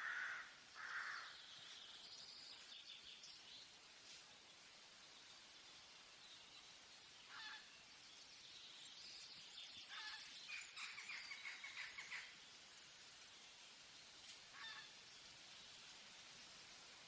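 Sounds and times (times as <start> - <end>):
faint forest ambience: 0.0 - 17.0
bird calling: 7.3 - 7.7, 9.8 - 12.3, 14.5 - 15.0.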